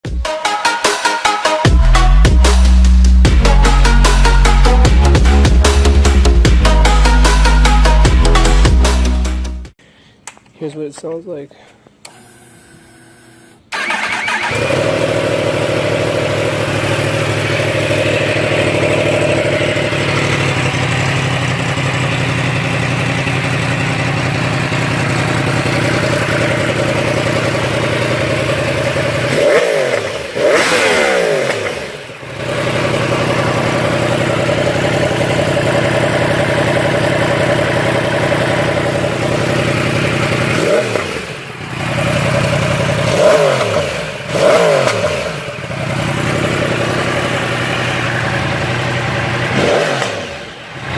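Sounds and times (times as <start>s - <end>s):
motorcycle engine revving: 13.7s - 50.9s.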